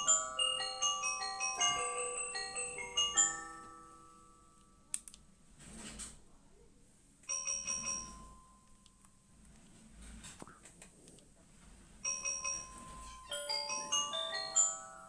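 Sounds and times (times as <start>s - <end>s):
keyboard bell-like notes: 0.0s - 4.9s, 12.0s - 15.0s.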